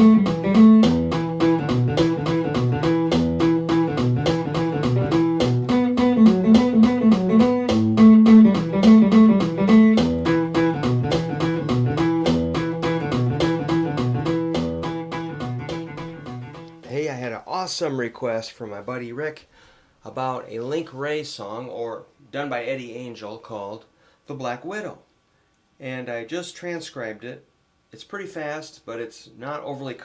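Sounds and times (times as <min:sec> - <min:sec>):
electric guitar rock riff: 0:00.0 - 0:16.8.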